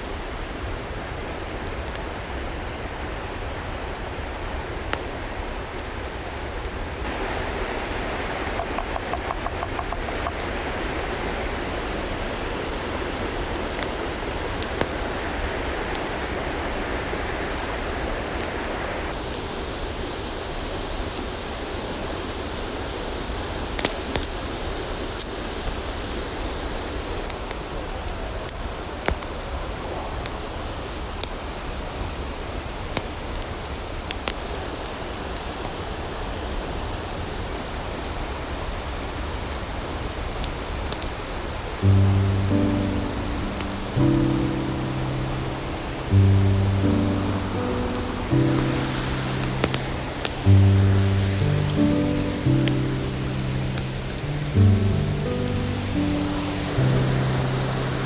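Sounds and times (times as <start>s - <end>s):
river rushing: 2.4s - 27.3s, 40.6s - 58.0s.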